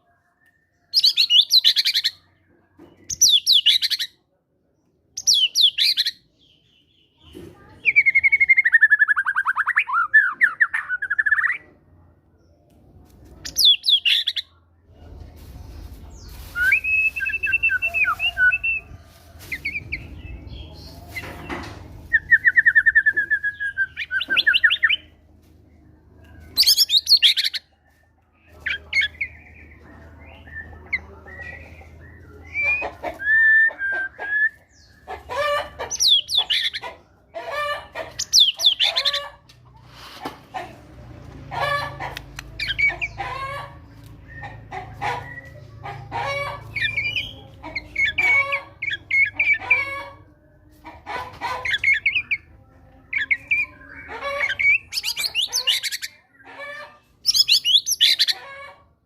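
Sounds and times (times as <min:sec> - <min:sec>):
bird singing varied song: 0:19.6 - 0:25.2, 0:35.9 - 0:36.9, 0:38.2 - 0:39.2, 0:46.7 - 0:49.8, 0:57.2 - 0:58.4.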